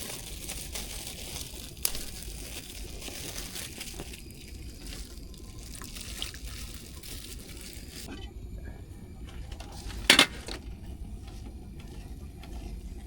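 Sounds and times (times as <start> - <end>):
water trickling and splashing: 0.0 - 8.1.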